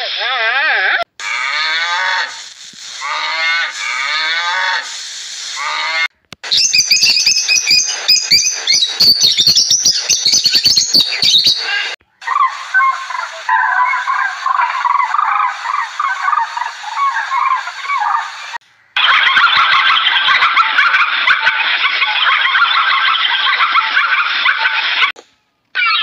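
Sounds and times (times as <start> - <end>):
parrots squawking and chattering: 5.6 - 25.0, 25.8 - 26.0
cranes calling: 6.6 - 20.4.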